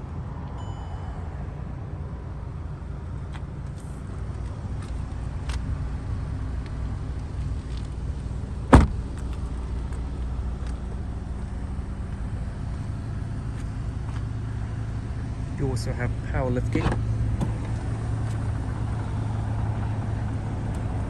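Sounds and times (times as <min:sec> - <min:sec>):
steady low rumble: 0:00.0 - 0:21.0
car door shutting: 0:08.7 - 0:09.4, 0:16.7 - 0:18.4.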